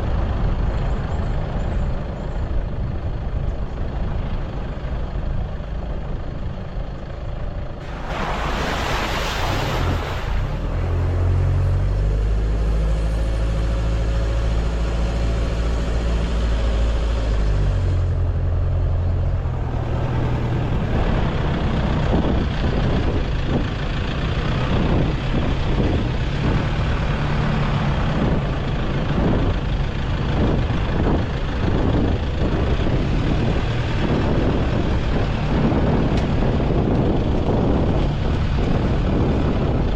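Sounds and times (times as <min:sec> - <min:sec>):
vehicle engine running: 0:00.0 - 0:39.9
loud hiss: 0:07.8 - 0:10.4.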